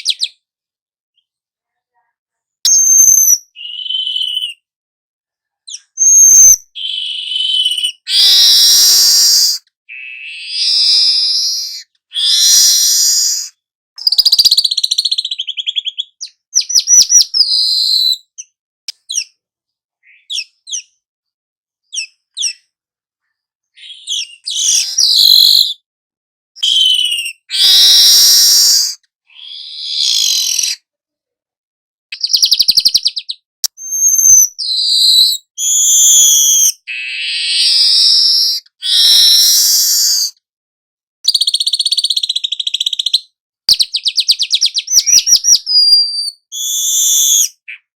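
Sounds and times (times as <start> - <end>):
bird singing: 2.7 - 4.7, 5.7 - 19.4, 20.0 - 21.0, 23.7 - 25.8, 26.6 - 28.8, 32.2 - 39.4, 41.3 - 47.9.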